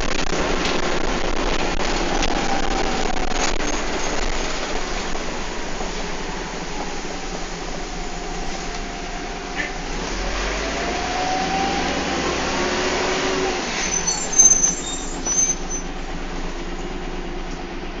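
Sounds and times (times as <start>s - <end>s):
bus engine and driveline whine: 0.0s - 18.0s
high-pitched squeaks and rattles: 13.7s - 16.0s.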